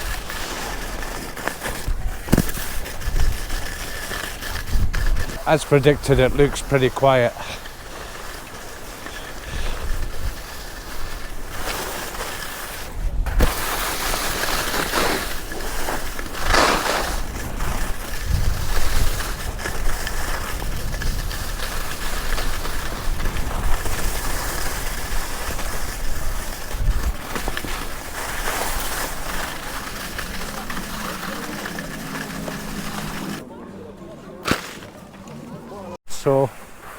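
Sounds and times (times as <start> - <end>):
skis scraping over snow: 0.0 - 33.4, 34.4 - 36.9
wind rushing over microphone: 18.1 - 27.3.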